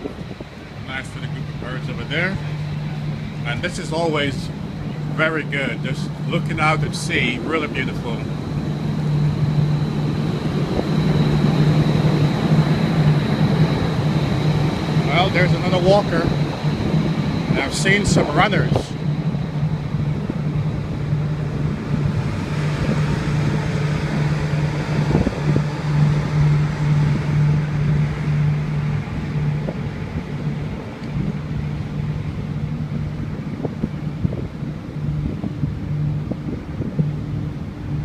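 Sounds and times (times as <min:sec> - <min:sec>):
low machinery hum: 0:00.0 - 0:38.0
wind buffeting microphone: 0:00.0 - 0:38.0.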